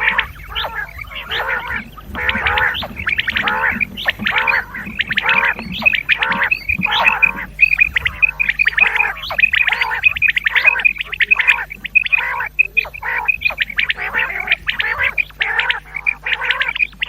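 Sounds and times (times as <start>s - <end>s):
harsh croaking calls: 0.0s - 17.0s
quail high repeated calls: 0.0s - 17.0s.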